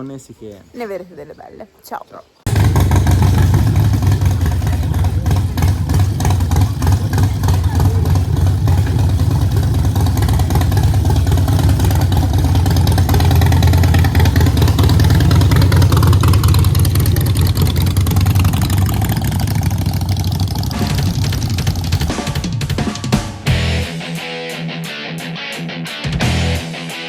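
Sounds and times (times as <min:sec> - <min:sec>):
motorcycle engine running: 0:02.5 - 0:24.0.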